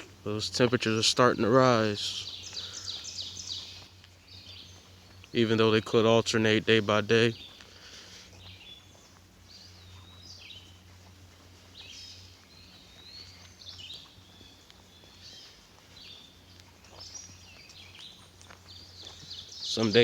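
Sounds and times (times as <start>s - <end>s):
songbird warbling: 0.0s - 10.8s.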